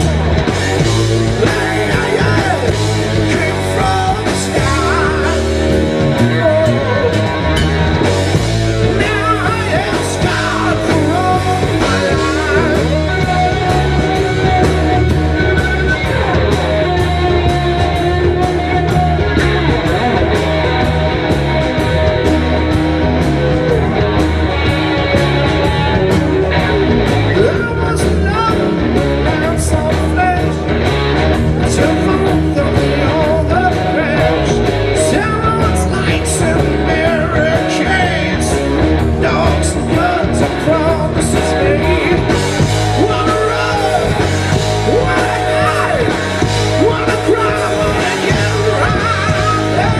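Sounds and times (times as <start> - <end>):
live rock band playing: 0.0 - 49.9
person singing: 1.3 - 7.4, 8.8 - 16.0, 31.6 - 49.9.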